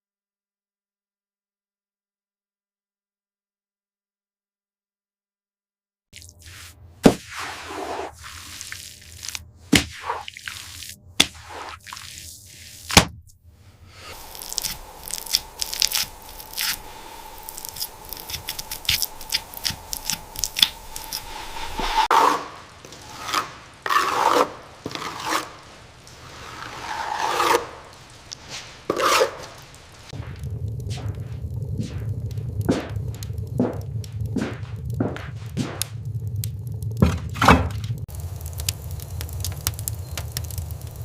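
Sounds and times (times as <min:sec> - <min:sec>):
long scrapes: 0:06.4 - 0:09.2, 0:13.5 - 0:32.3.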